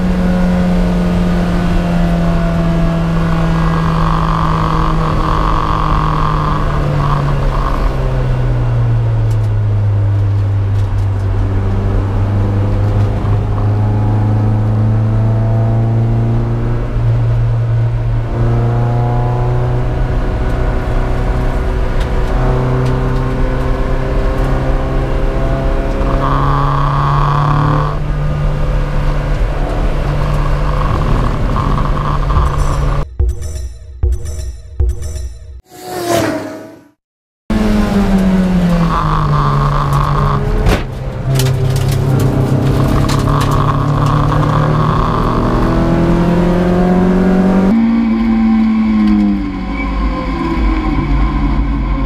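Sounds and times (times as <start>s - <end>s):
race car engine shifting gears: 0.0s - 17.1s, 18.2s - 33.1s, 37.5s - 48.4s.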